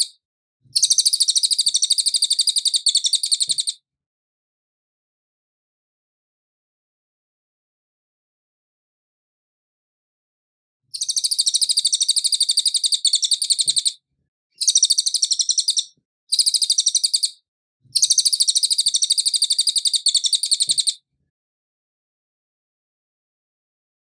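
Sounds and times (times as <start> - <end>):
songbird trilling: 0.8 - 3.7, 11.0 - 14.0, 14.6 - 17.4, 18.0 - 20.9.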